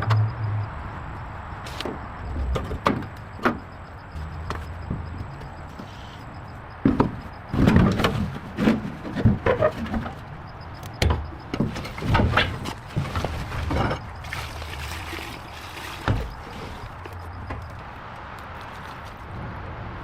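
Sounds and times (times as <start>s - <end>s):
irregular knocks and bangs: 1.9s - 5.6s, 6.8s - 10.2s.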